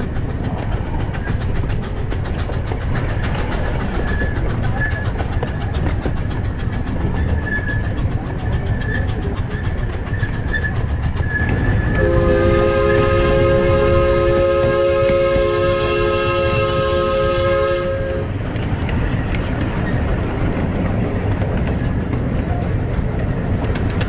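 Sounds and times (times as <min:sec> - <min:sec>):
miniature steam train rumbling: 0:00.0 - 0:24.0
wheels clattering on track: 0:00.0 - 0:24.0
multi-tone steam whistle: 0:11.8 - 0:18.3.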